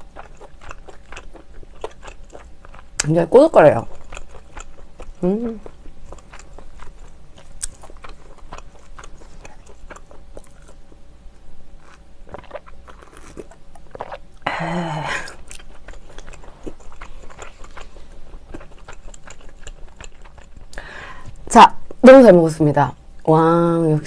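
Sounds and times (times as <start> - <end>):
chewing with wet mouth clicks: 0.0 - 3.1, 3.8 - 10.8, 11.8 - 14.4, 15.2 - 20.8
closed-mouth hum: 4.8 - 24.0.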